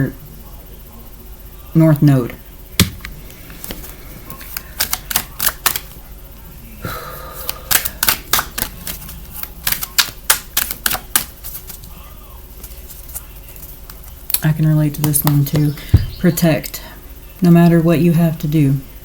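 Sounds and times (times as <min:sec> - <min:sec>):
cards being shuffled: 0:02.8 - 0:06.0, 0:07.4 - 0:12.0, 0:12.6 - 0:14.4.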